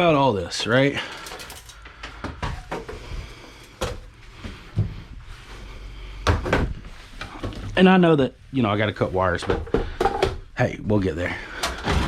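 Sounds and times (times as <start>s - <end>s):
computer parts knocking and clunking: 9.4s - 10.4s, 11.6s - 12.0s.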